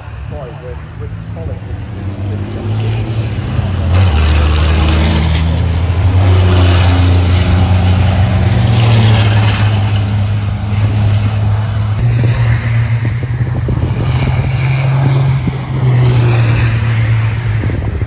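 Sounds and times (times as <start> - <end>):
diesel truck engines racing: 0.0 - 18.0.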